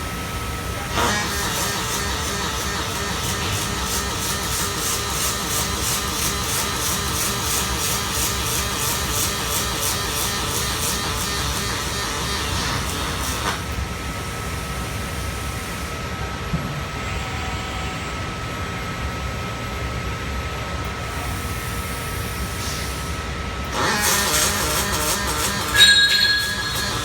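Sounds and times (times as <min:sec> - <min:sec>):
welding arc crackling hiss: 0:00.5 - 0:15.9, 0:22.1 - 0:27.0
faint thin whine: 0:25.4 - 0:27.0.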